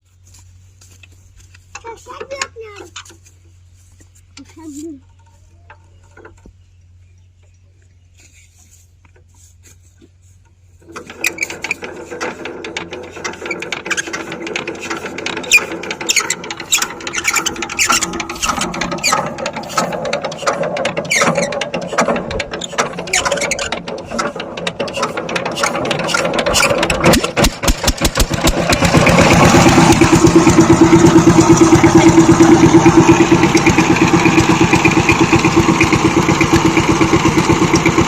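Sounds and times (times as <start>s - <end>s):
power tiller engine clattering: 1.5s - 3.5s, 10.4s - 38.0s.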